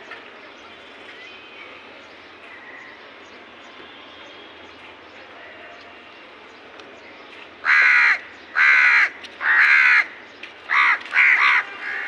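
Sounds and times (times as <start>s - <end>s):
crow cawing: 7.6s - 12.0s.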